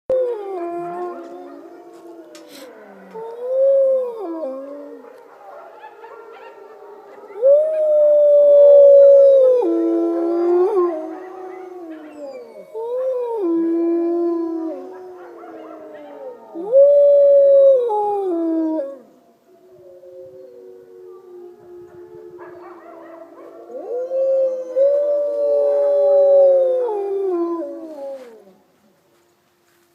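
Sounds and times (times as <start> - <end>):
wolves howling: 0.1 - 28.6
higher overlapping howls: 0.1 - 29.8.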